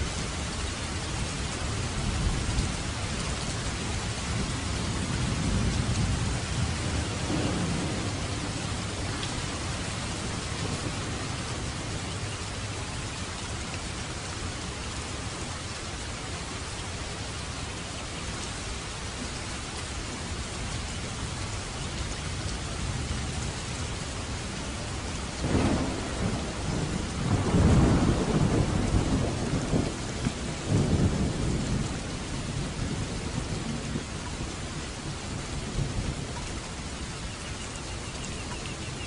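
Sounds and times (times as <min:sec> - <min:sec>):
heavy rain: 0:00.0 - 0:39.0
thunder rumbling: 0:03.7 - 0:13.0, 0:24.3 - 0:36.4.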